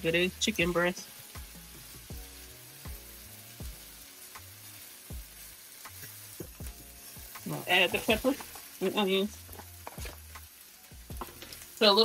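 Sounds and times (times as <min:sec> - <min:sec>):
background music with steady beat: 0:00.0 - 0:12.0
chicken sizzling in a skillet: 0:00.0 - 0:12.0
fork turning meat: 0:07.5 - 0:08.8, 0:09.4 - 0:10.4.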